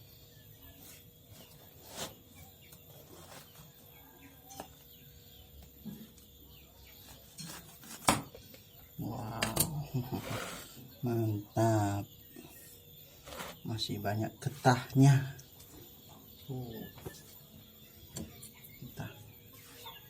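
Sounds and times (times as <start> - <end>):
fruit husk splitting: 7.4 - 8.3.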